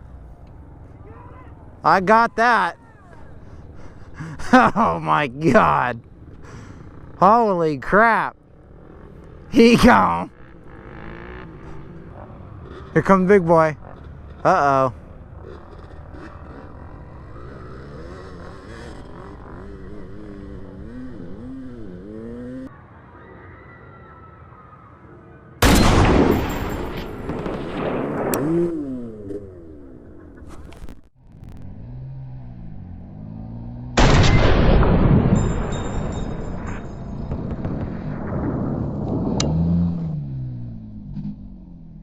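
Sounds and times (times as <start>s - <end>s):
dirt bike engine revving: 4.2s - 7.6s, 8.5s - 22.7s, 28.3s - 30.6s, 31.2s - 34.2s
loud blasts: 25.6s - 29.2s, 34.0s - 39.8s.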